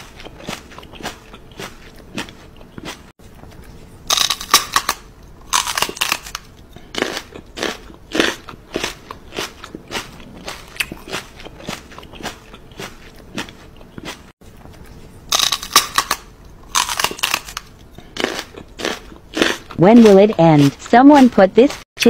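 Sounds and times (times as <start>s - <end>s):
person chewing crisp food: 0.0s - 21.8s.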